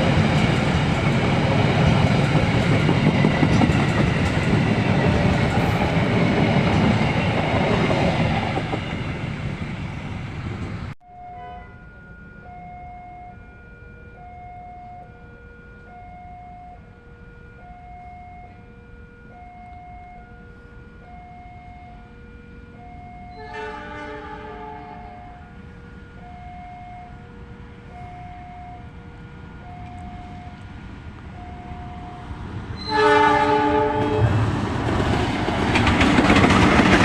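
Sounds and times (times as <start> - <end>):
train wheels clattering on rails: 0.0 - 9.7, 34.0 - 37.0
simple electronic melody: 11.0 - 17.0.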